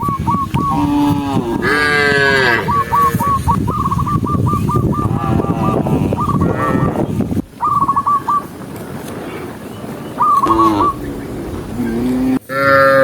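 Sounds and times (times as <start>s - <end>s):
bird whistling calls: 0.0s - 0.9s, 2.6s - 5.1s, 7.6s - 8.5s, 10.0s - 12.2s
cow mooing: 1.1s - 2.9s, 10.5s - 13.0s.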